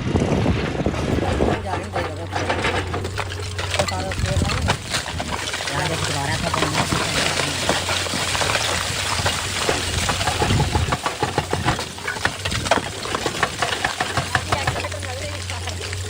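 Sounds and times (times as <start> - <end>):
crackle of clicks and rattles: 0.0 - 16.0
excavator engine running: 0.0 - 16.0.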